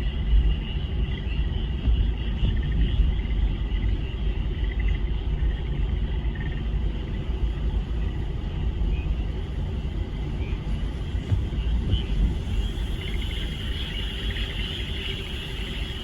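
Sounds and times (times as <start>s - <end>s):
continuous low rumble: 0.0s - 16.0s
frog chorus trilling: 0.6s - 6.7s, 12.8s - 16.0s.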